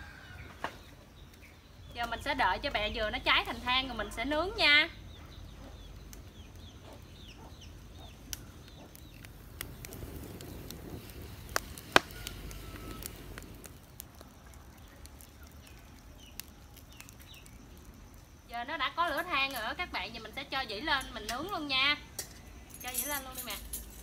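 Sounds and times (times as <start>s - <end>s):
fire popping and crackling: 0.2s - 24.0s
chickens calling: 4.0s - 17.5s.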